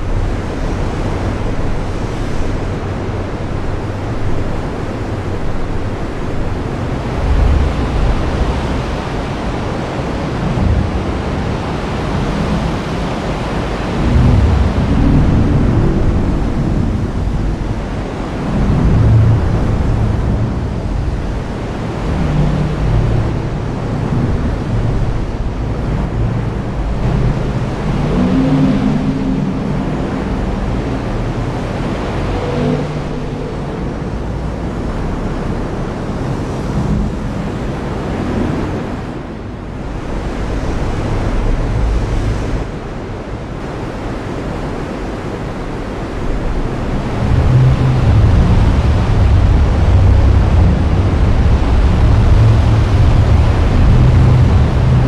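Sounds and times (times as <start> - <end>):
thunder rumbling: 5.3 - 12.8, 13.6 - 35.2, 46.1 - 55.0.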